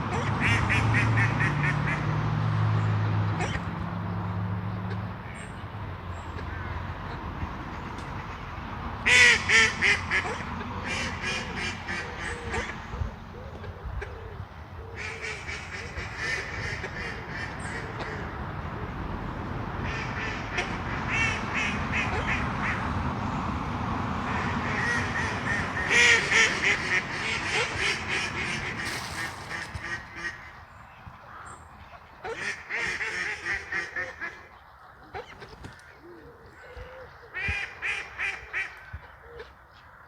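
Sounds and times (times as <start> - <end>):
ducks quacking: 0.0 - 2.2, 6.3 - 19.0, 19.8 - 23.0, 24.2 - 39.5.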